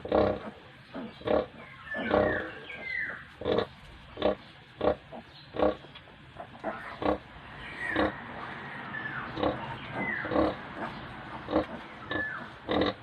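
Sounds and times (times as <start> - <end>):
sow grunting: 0.0 - 13.0
piglets squealing: 0.1 - 3.7, 7.8 - 8.2, 9.1 - 10.6, 11.5 - 13.0.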